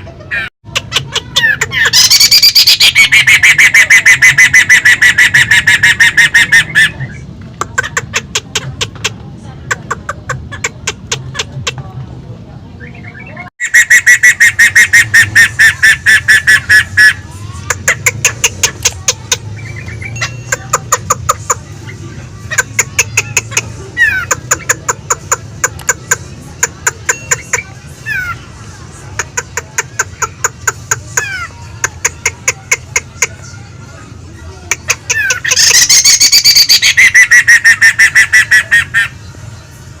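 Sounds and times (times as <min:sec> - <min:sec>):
laughingthrush chattering call: 0:00.1 - 0:11.8, 0:12.8 - 0:33.7, 0:34.4 - 0:39.3
bird singing repeated notes: 0:12.8 - 0:33.8, 0:34.7 - 0:40.0.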